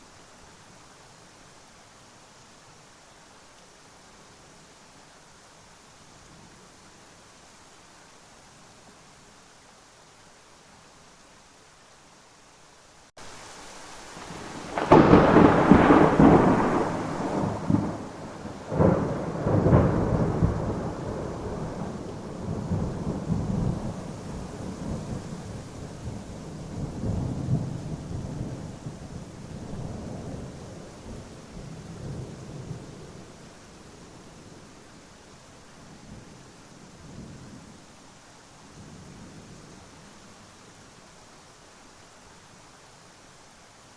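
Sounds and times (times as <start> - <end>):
rain hiss: 0.0 - 43.9
thunder crack: 14.3 - 23.8
rolling thunder rumble: 14.3 - 33.3.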